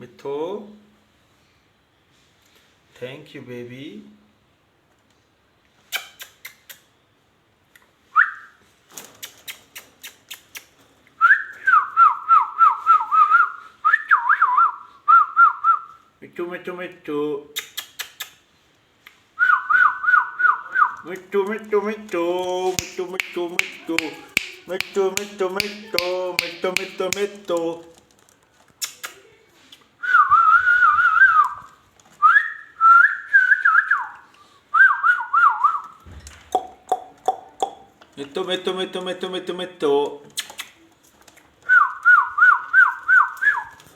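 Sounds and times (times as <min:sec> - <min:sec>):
sharp clicks: 0:21.1 - 0:27.8.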